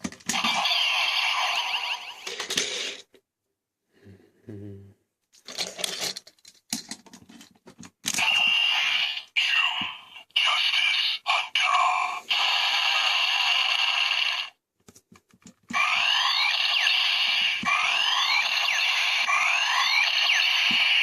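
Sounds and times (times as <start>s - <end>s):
toy electronic sound effects and music: 0.3s - 3.0s, 8.2s - 14.6s, 15.7s - 21.0s
sweeping repeating tones: 15.8s - 21.0s.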